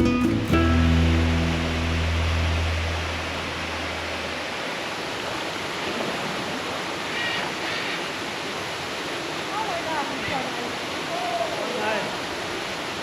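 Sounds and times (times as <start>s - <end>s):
background music: 0.0s - 4.0s
waterfall rushing: 0.0s - 13.0s.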